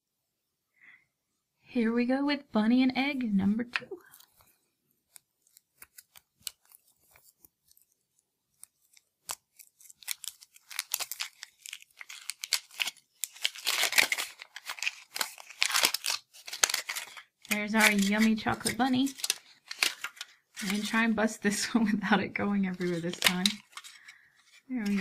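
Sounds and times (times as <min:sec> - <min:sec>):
foil wrapper crackling and tearing: 0:05.2 - 0:21.0, 0:22.8 - 0:25.0.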